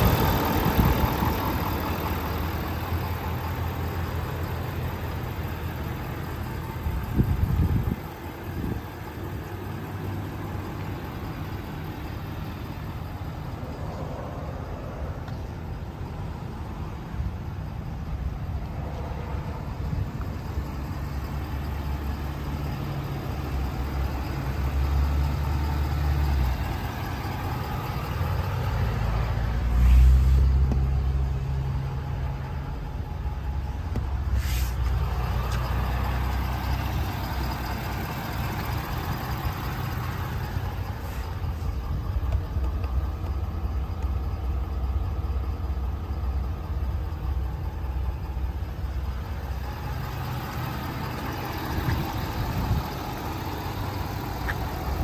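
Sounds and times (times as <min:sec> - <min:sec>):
truck engine idling: 0:00.0 - 0:55.0
short hiss: 0:34.4 - 0:34.9.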